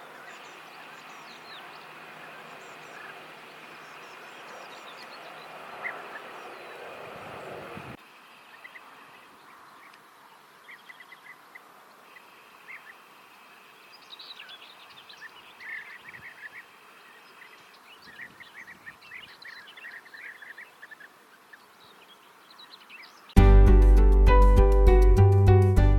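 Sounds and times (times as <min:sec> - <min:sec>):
birds rolling chirps: 0:00.0 - 0:23.3.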